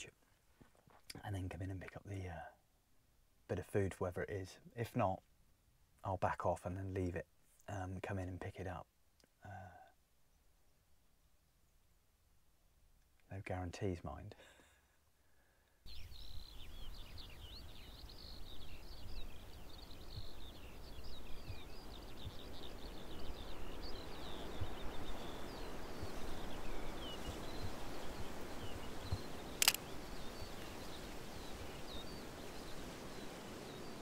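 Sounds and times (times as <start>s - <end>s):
small birds chirping: 13.0s - 34.0s
sharp click: 29.6s - 29.8s.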